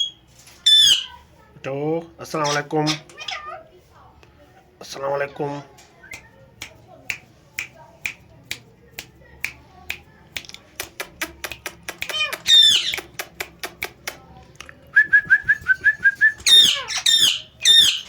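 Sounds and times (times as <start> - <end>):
parrot squawking harshly: 0.0 - 1.1, 2.4 - 3.7, 12.1 - 12.9, 16.4 - 18.0
finger snaps: 6.1 - 14.8.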